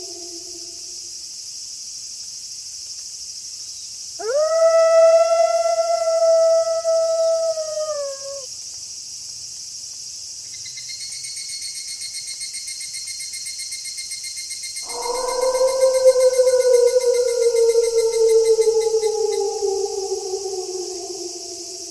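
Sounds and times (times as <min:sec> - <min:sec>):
wolf howling: 0:00.0 - 0:01.0, 0:04.2 - 0:08.5, 0:14.8 - 0:21.9
insects chirring: 0:00.0 - 0:01.4, 0:03.7 - 0:09.0, 0:10.3 - 0:21.9
pulsing high chirp: 0:14.8 - 0:21.9.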